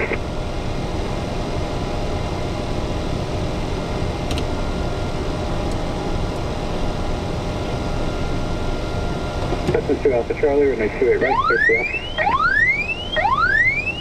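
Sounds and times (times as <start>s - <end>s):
air-conditioning and cooling fans whirring: 0.0s - 14.0s.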